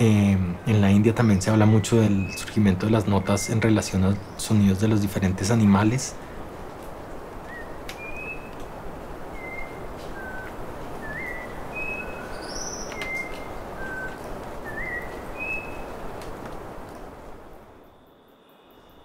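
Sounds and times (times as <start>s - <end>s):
steady background hiss: 0.0s - 19.0s
bird whistling notes: 1.4s - 4.4s, 9.3s - 16.0s.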